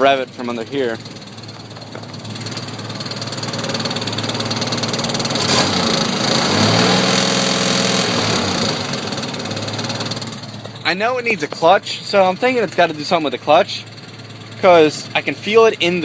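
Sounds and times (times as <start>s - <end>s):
engine revving: 2.1s - 10.4s.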